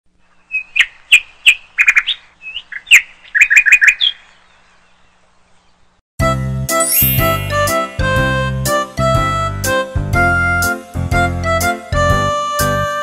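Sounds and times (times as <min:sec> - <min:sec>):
bright musical jingle: 0:06.7 - 0:08.9
high bird chirps: 0:06.8 - 0:07.7.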